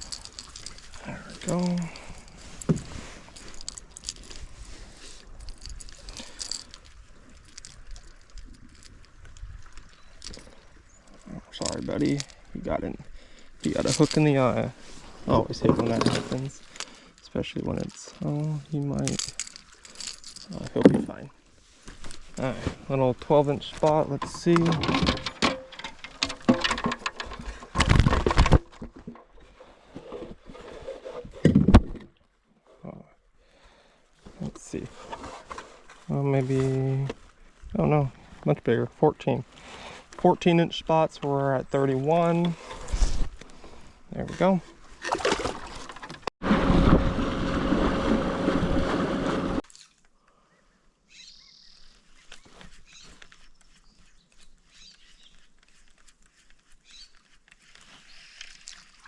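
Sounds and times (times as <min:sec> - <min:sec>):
fish flopping and rubbing: 0:00.0 - 0:12.5, 0:42.2 - 0:46.9, 0:51.8 - 0:59.0
rustling: 0:00.0 - 0:32.1, 0:51.7 - 0:59.0
small clicks taps and rustles: 0:23.8 - 0:29.4.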